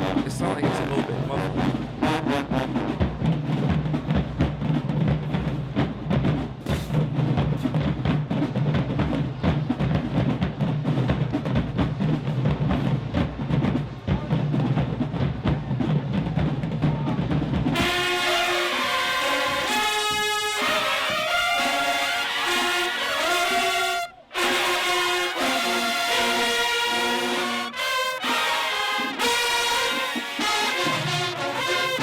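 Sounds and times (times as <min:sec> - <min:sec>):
brass section held notes: 0:00.0 - 0:03.3, 0:17.7 - 0:32.0
marching band drums: 0:00.0 - 0:32.0.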